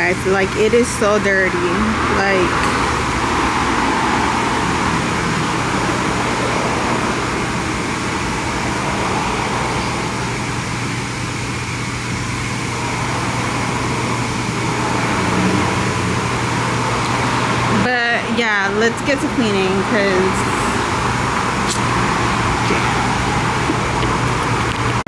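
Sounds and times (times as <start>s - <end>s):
vehicle noise rushing: 0.0s - 25.0s.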